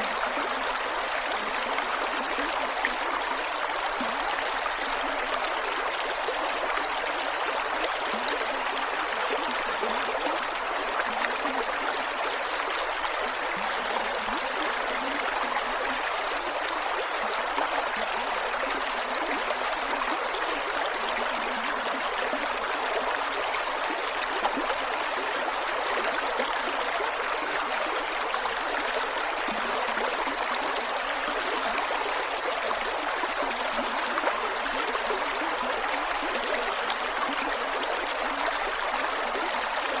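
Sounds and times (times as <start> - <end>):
creek flowing over rocks: 0.0 - 40.0.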